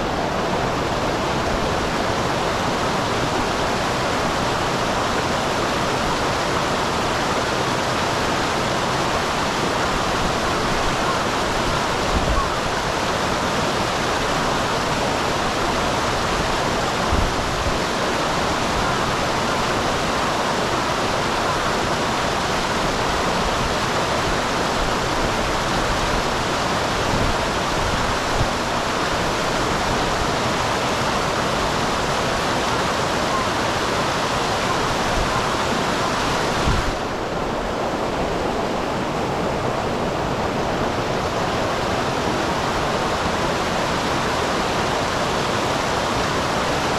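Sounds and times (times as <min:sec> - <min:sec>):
small waterfall rushing: 0:00.0 - 0:46.9.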